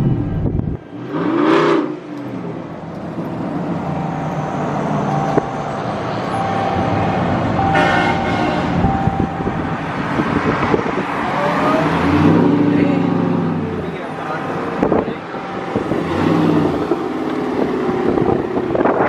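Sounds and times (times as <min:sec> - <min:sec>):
traffic engine and road noise: 0:00.0 - 0:19.0
vehicle horns honking: 0:06.6 - 0:09.7.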